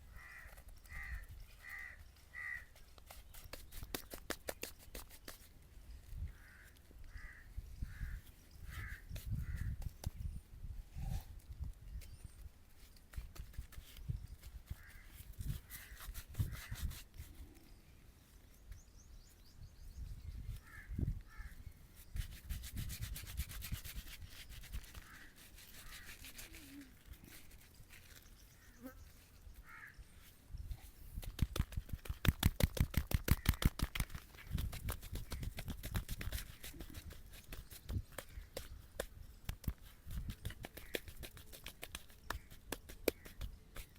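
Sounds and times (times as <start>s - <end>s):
straight razor scraping stubble: 14.7s - 17.4s, 22.0s - 28.4s.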